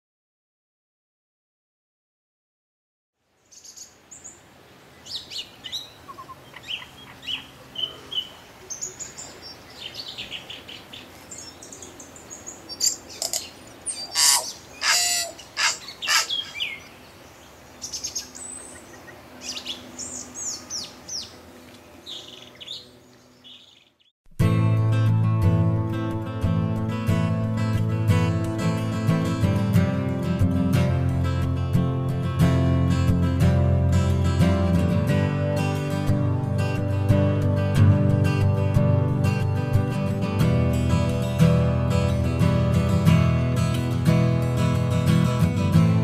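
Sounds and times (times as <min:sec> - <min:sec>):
birds chirping: 0:03.4 - 0:24.1.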